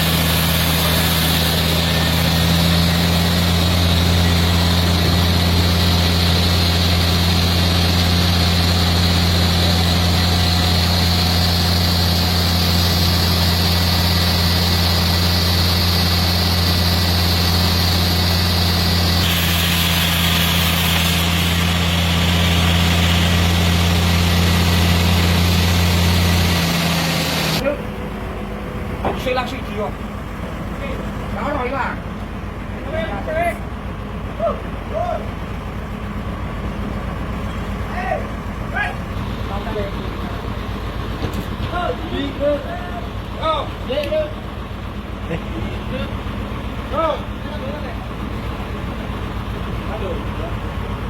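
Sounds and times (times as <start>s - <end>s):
chainsaw cutting wood: 0.0s - 27.6s.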